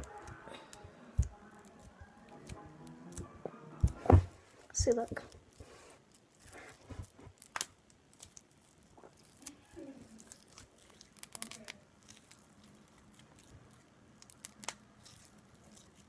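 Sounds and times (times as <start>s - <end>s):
slime squished by hand: 4.9s - 16.0s.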